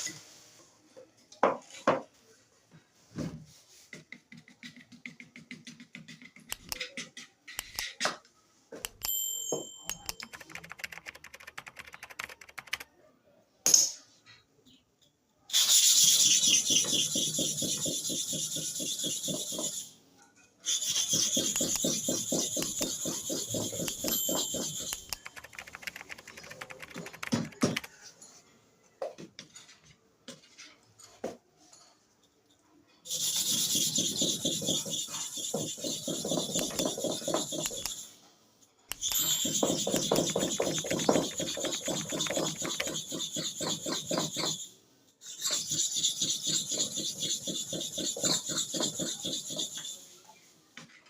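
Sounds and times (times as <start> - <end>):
blade scraping on sharpening stone: 20.6 - 25.3, 38.9 - 50.1.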